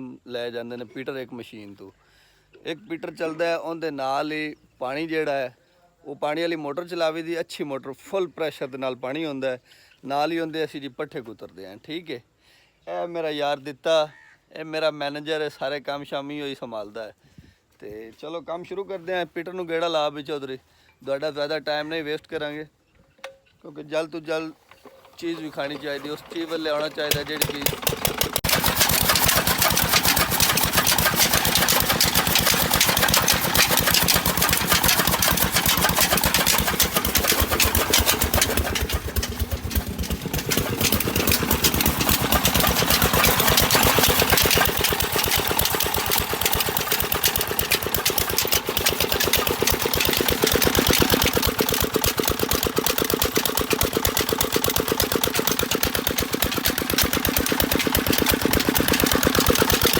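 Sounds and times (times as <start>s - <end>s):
single-cylinder diesel engine running: 24.7s - 59.9s.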